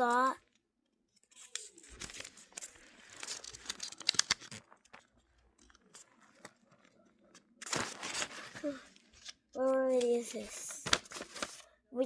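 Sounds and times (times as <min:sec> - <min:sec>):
plastic packaging crinkling and tearing: 0:01.4 - 0:06.9, 0:07.6 - 0:09.3.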